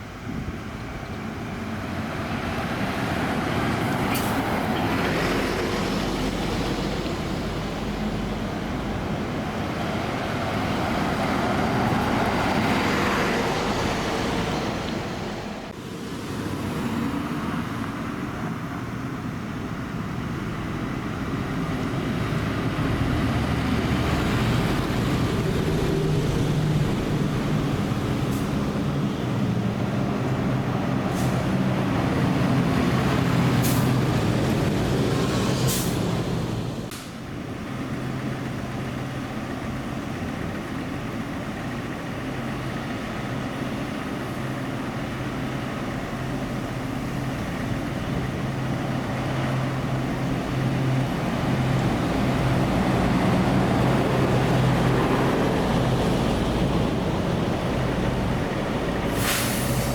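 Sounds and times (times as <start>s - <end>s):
diesel bus engines droning: 0.0s - 59.9s
short hisses: 59.1s - 59.9s.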